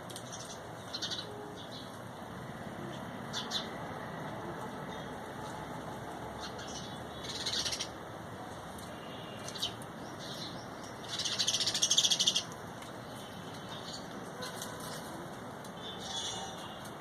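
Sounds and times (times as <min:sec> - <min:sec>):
small birds calling: 0:00.2 - 0:02.0, 0:02.9 - 0:03.8, 0:06.3 - 0:08.0, 0:08.8 - 0:14.6, 0:15.8 - 0:17.0.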